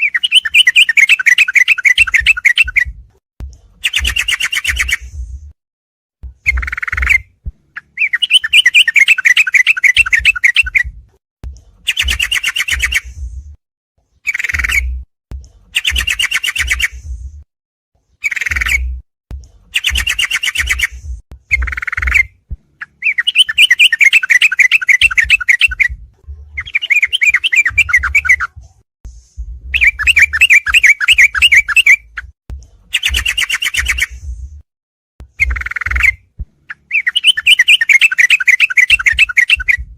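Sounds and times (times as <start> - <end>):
bird rapid chirping: 0.0 - 3.0, 3.8 - 5.3, 6.3 - 11.0, 11.8 - 13.3, 14.2 - 15.0, 15.7 - 17.2, 18.2 - 19.0, 19.7 - 28.6, 29.7 - 34.3, 35.3 - 39.9
bird buzzy chatter: 26.6 - 28.4.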